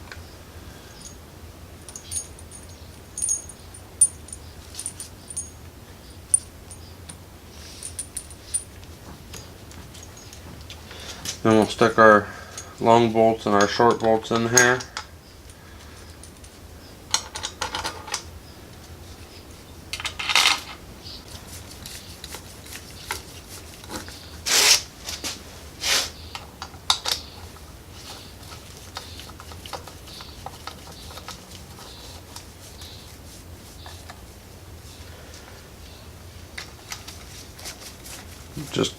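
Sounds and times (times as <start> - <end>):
metal bolts clinking: 1.8 - 5.7, 6.3 - 10.5.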